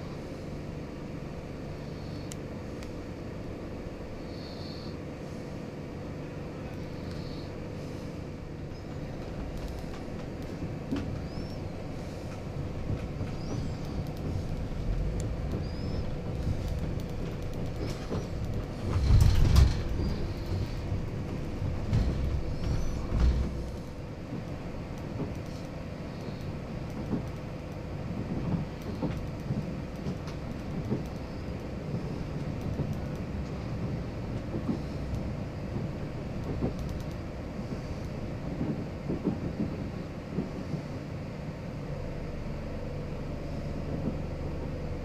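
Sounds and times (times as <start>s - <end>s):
train rumbling on rails: 0.0s - 45.0s
rail clicks: 8.5s - 40.9s.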